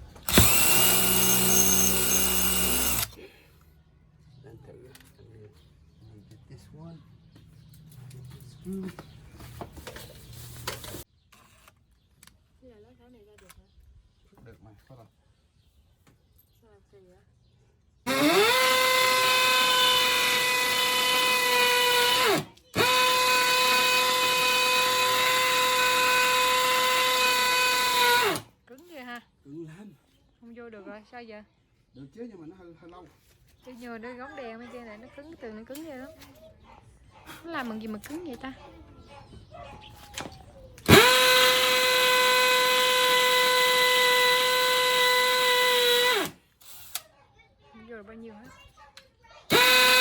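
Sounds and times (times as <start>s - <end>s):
electric drill boring into wall: 0.0s - 3.2s, 18.1s - 28.5s, 40.8s - 47.0s, 49.5s - 50.0s.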